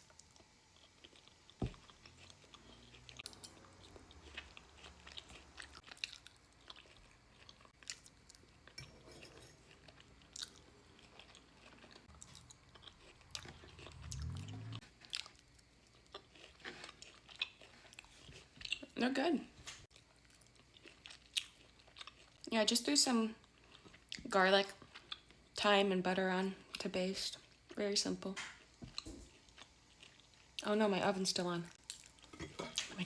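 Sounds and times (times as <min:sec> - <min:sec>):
low hum: 0:12.1 - 0:14.8.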